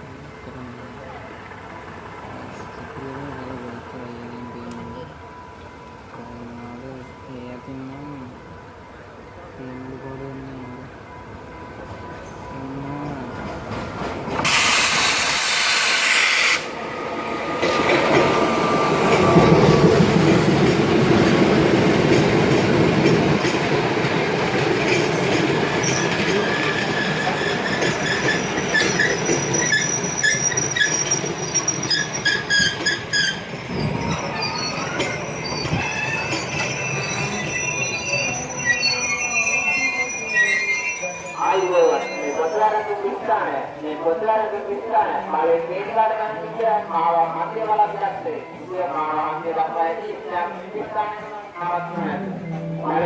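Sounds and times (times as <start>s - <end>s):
train carriages rumbling: 0.0s - 53.0s
loud hiss: 14.4s - 16.8s
metallic wheel squeal: 25.8s - 43.2s.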